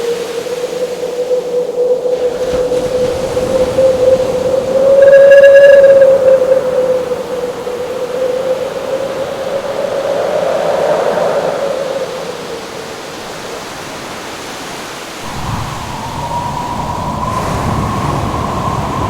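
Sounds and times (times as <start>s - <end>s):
howling wind: 0.0s - 19.0s
rushing surf: 0.0s - 19.0s
whistling tone: 0.6s - 10.2s, 15.3s - 19.0s
low rumble: 15.3s - 19.0s.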